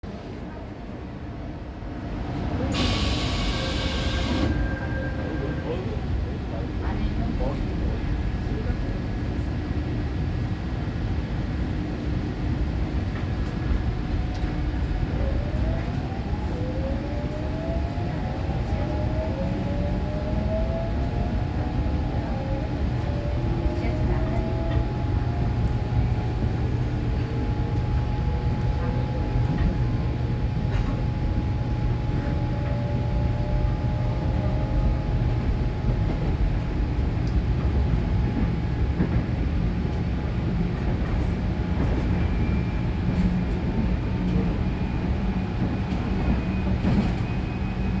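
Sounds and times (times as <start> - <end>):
train rumbling on rails: 0.0 - 48.0.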